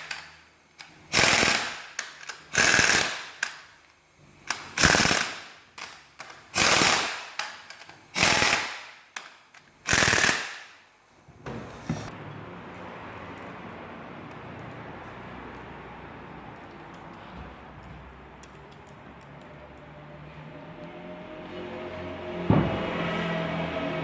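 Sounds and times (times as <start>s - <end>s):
ratchet wrench clicking: 0.0s - 3.8s, 4.4s - 10.7s.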